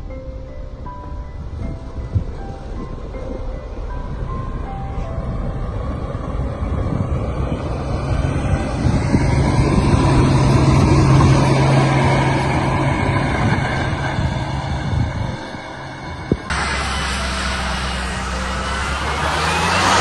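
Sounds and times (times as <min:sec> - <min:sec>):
heavy machine engine running: 0:04.2 - 0:20.0.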